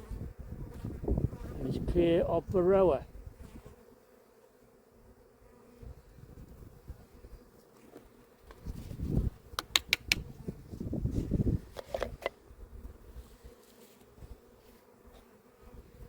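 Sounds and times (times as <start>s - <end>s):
honeybees buzzing: 0.0s - 16.0s
sharp clicks: 9.6s - 10.3s.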